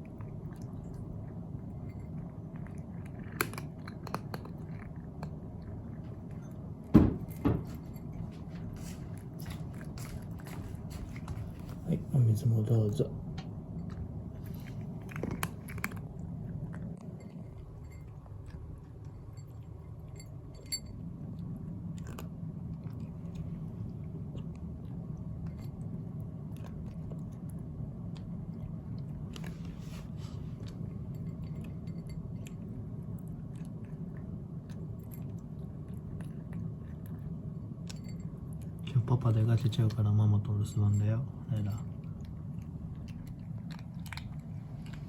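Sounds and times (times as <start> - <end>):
low hum: 0.0 - 45.0
pet chewing food: 0.0 - 45.0.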